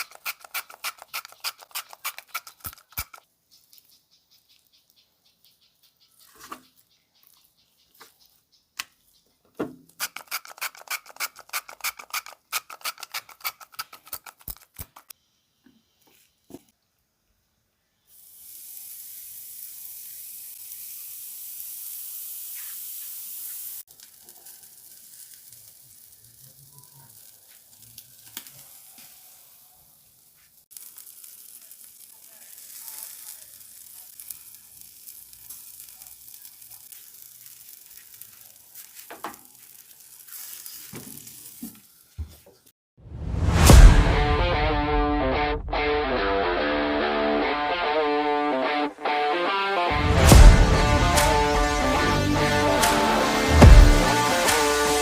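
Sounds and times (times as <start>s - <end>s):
sharp clicks: 0.0s - 3.2s
chicken sizzling on a grill: 0.0s - 8.4s, 17.8s - 42.7s, 51.0s - 55.0s.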